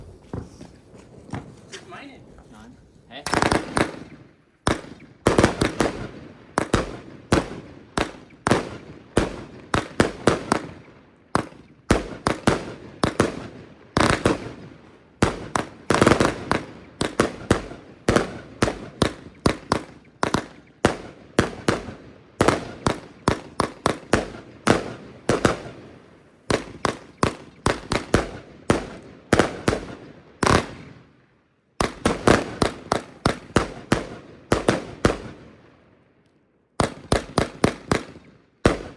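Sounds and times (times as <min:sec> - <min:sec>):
fireworks battery bangs: 0:00.0 - 0:10.8.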